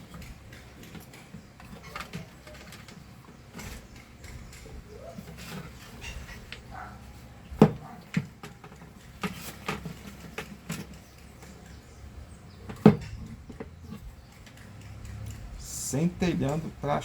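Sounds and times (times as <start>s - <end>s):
plastic parts clicking and knocking: 0.0s - 11.8s, 12.6s - 15.6s.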